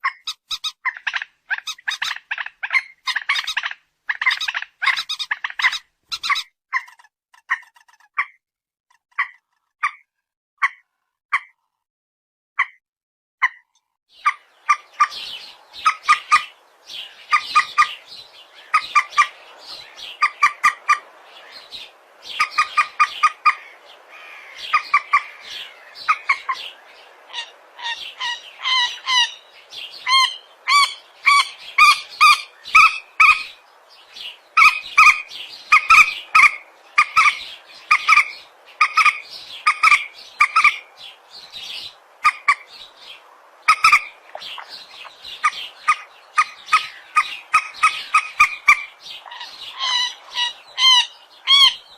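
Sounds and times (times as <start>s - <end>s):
rail bird calls: 0.0s - 8.4s, 13.4s - 51.9s
background hiss: 14.4s - 51.9s.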